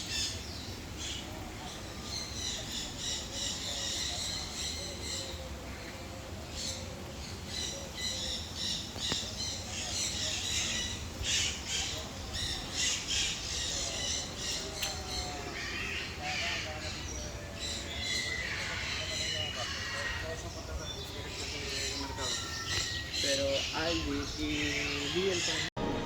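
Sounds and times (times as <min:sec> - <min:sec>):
parrots squawking: 0:18.0 - 0:20.4, 0:21.3 - 0:25.7.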